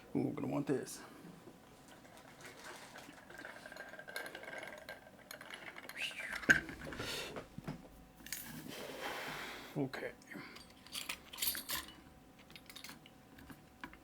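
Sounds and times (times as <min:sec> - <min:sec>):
metal tools clinking and scraping: 0:08.2 - 0:08.8, 0:10.6 - 0:13.1.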